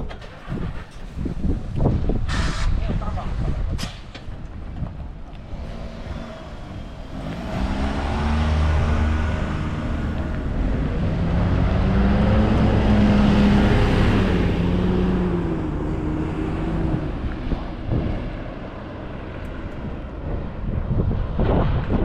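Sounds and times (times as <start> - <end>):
road noise: 0.0 - 22.0
bus diesel engine pulling away: 4.5 - 20.9.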